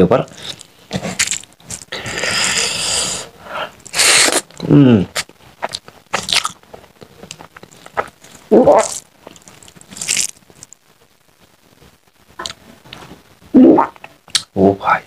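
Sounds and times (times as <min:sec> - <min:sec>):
man chewing with mouth smacks: 0:03.8 - 0:10.8, 0:14.0 - 0:14.5.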